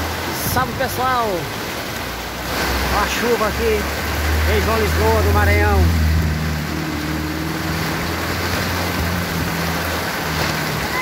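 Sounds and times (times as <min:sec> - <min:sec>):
heavy rain pouring: 0:00.0 - 0:11.0
car engine hum driving past: 0:03.6 - 0:11.0.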